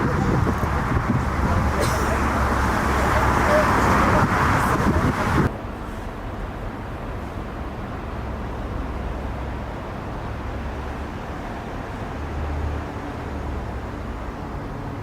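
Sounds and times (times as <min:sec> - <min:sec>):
jet engines rumbling: 0:00.0 - 0:05.5.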